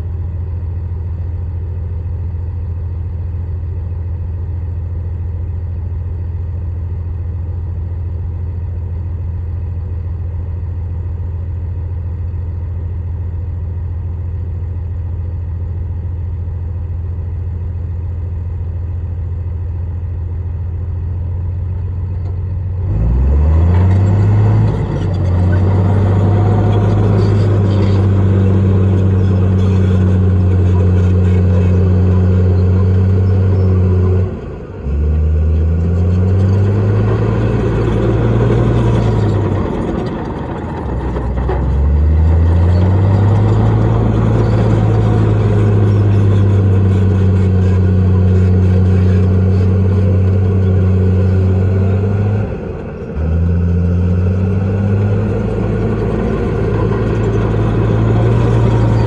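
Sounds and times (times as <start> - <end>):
heavy diesel engine revving: 22.8 - 59.0.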